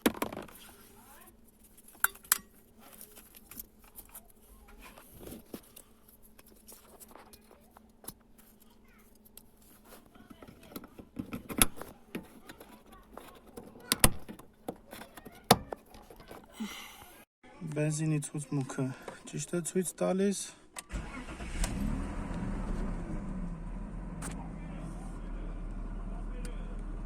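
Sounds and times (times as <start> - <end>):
clicks and knocks on car parts: 10.4 - 16.5.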